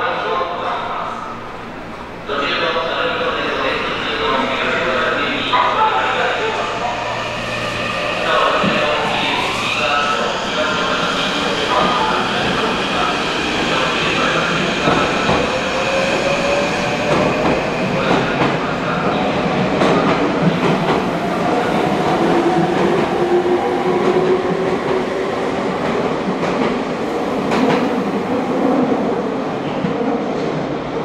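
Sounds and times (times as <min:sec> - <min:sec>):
train rumbling: 0:00.0 - 0:31.0.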